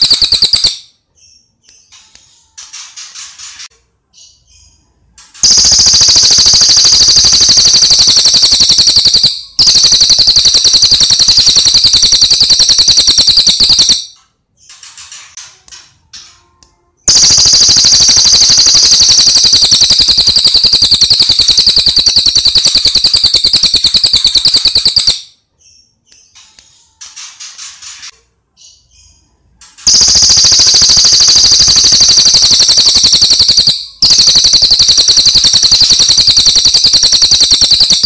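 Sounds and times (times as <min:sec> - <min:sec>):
rapid rattling bird trills: 0:00.0 - 0:00.8, 0:05.4 - 0:14.0, 0:17.1 - 0:25.2, 0:29.8 - 0:38.0.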